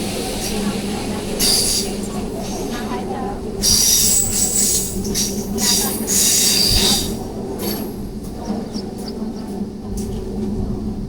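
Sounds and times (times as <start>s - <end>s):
running train hum: 0.0s - 11.0s
train wheels squealing: 1.4s - 2.8s, 3.6s - 9.1s.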